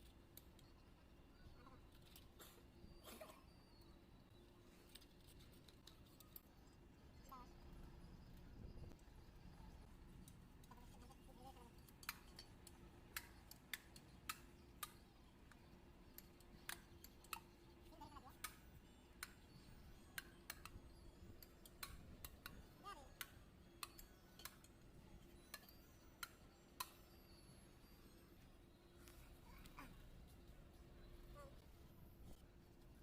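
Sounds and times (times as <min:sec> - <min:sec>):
sharp irregular clicks: 0:11.8 - 0:17.6, 0:18.4 - 0:22.6.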